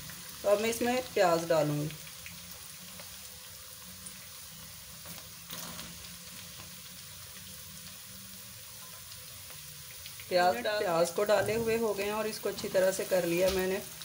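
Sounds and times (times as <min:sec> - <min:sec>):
oil sizzling in a wok: 0:00.0 - 0:14.0.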